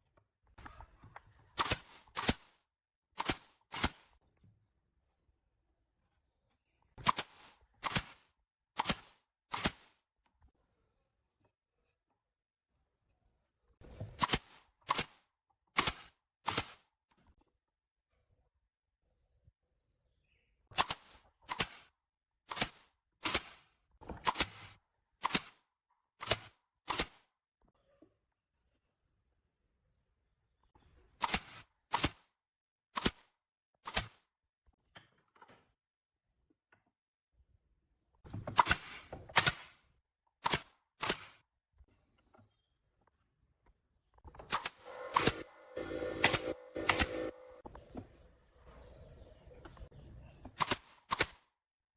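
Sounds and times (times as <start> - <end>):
sharp clicks: 3.2 - 4.1, 25.2 - 25.6, 40.4 - 41.4, 44.3 - 47.6, 50.5 - 51.5
sharp double clicks: 44.5 - 47.6
steady hum: 44.9 - 47.6.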